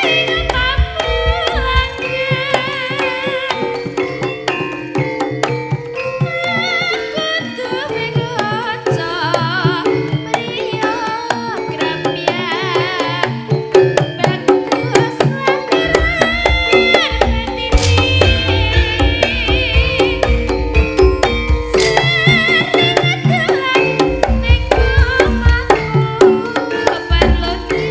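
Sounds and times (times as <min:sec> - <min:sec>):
ornamented gamelan melody: 0:00.0 - 0:27.9
hand drum strokes: 0:13.9 - 0:27.9
deep low drum beat: 0:15.9 - 0:23.1.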